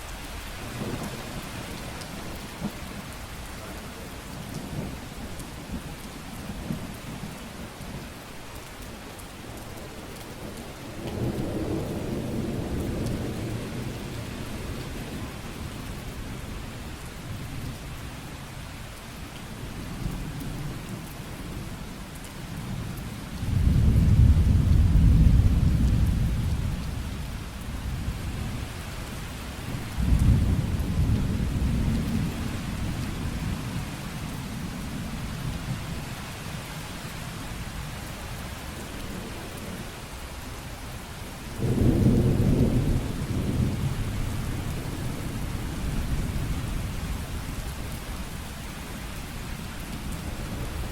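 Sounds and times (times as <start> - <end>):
steady rain falling: 0.0 - 50.9
low rumbles of thunder: 0.6 - 7.5, 10.5 - 18.0, 19.6 - 36.2, 41.5 - 48.6.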